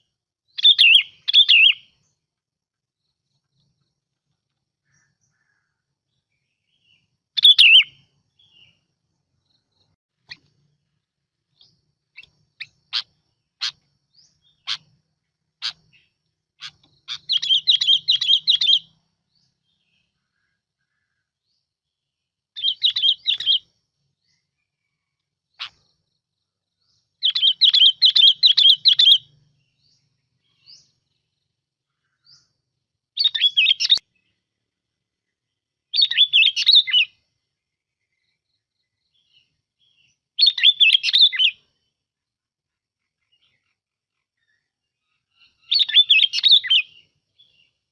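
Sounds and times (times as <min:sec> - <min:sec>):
bird call notes: 0:00.0 - 0:02.1, 0:06.8 - 0:08.8, 0:11.6 - 0:19.0
bird warbling song: 0:00.0 - 0:47.9.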